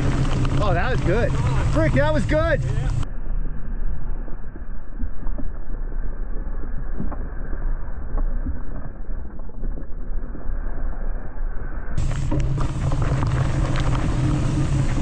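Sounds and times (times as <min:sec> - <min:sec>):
wind on microphone: 0:00.0 - 0:03.1, 0:11.9 - 0:15.0
bike tyre rumble: 0:00.0 - 0:15.0.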